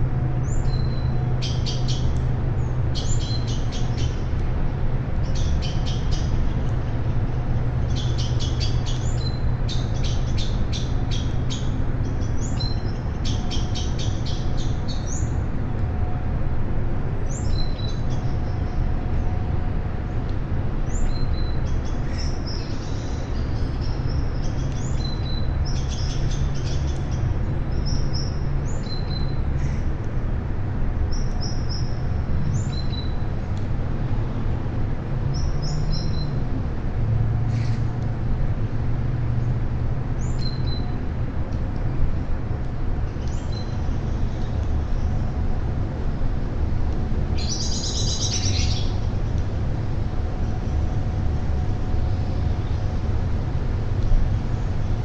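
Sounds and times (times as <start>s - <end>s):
steady low rumble: 0.0s - 55.0s
birds chirping and trilling: 47.4s - 49.0s.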